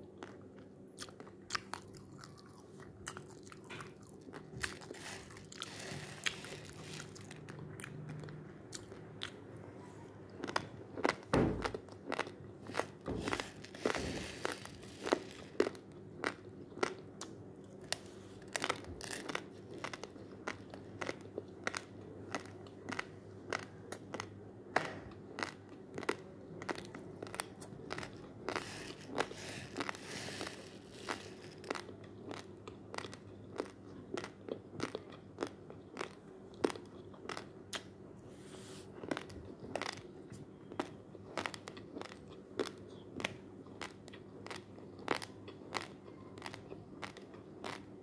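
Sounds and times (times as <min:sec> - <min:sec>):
faint steady hum: 0:00.0 - 0:48.0
rice grains crunched between teeth: 0:04.6 - 0:07.5, 0:12.1 - 0:15.8, 0:17.9 - 0:23.6, 0:25.4 - 0:33.7.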